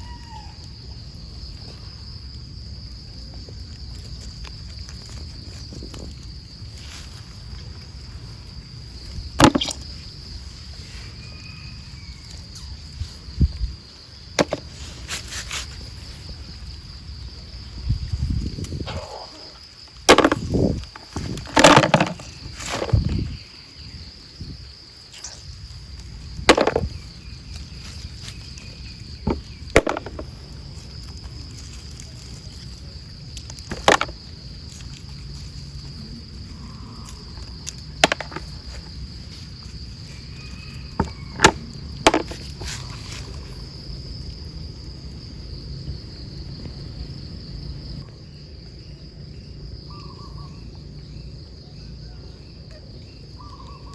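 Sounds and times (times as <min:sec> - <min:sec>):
insects trilling: 0:00.0 - 0:53.9
sharp snaps and knocks: 0:09.4 - 0:09.9, 0:41.0 - 0:43.3.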